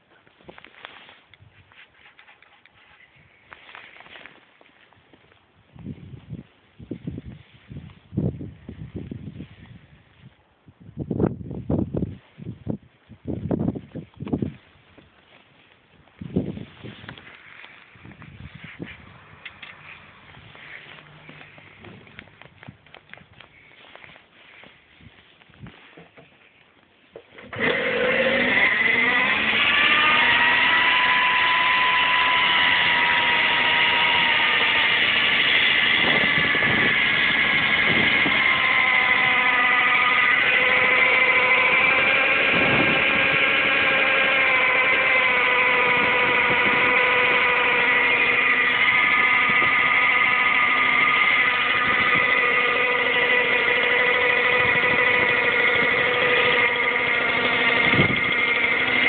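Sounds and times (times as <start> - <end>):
two-stroke engine idling: 27.3 - 59.0.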